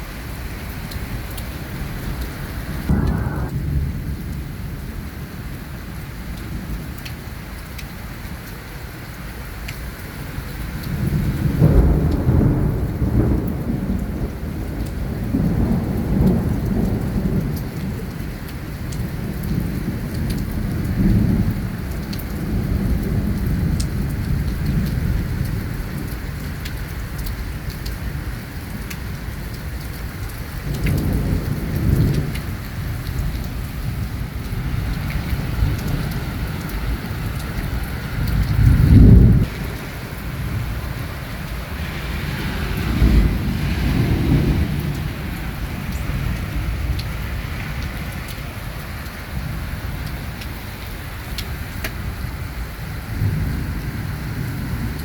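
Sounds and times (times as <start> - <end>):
steady rain: 0.0 - 55.0
low rolls of thunder: 2.8 - 7.0, 10.9 - 26.1, 30.6 - 50.3, 52.0 - 55.0.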